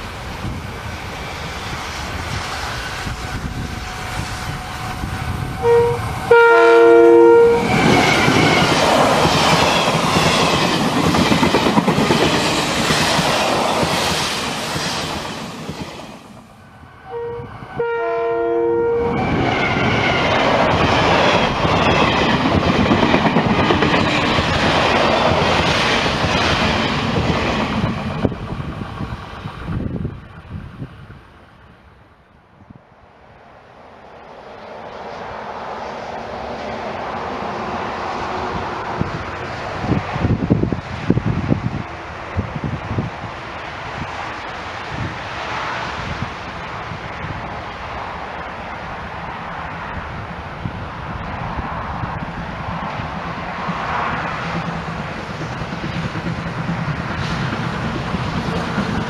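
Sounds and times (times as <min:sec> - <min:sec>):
train rumbling past: 0:00.0 - 0:59.0
train horn: 0:02.8 - 0:08.7, 0:17.0 - 0:19.8.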